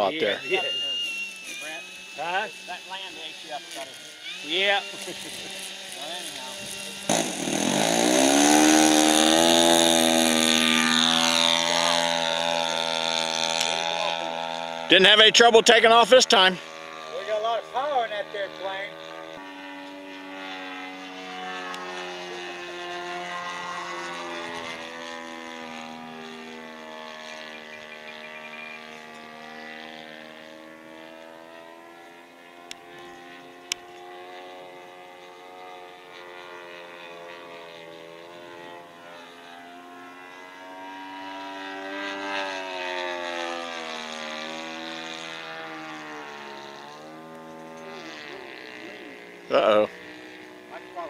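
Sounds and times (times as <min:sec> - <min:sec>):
model airplane motor droning: 0:00.0 - 0:51.0.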